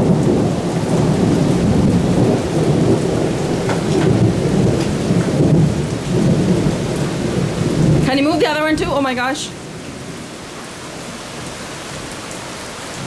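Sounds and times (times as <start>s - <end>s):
low storm rumble: 0.0s - 10.5s
rain pouring: 0.0s - 13.0s.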